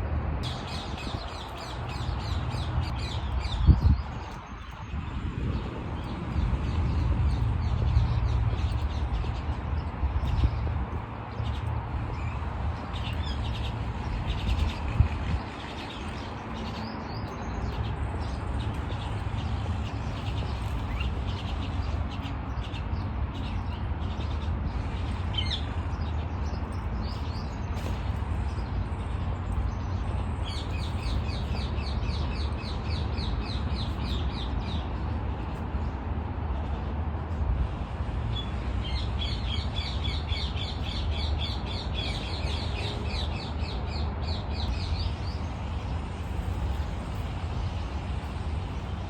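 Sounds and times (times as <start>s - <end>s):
birds chirping: 0.4s - 36.9s.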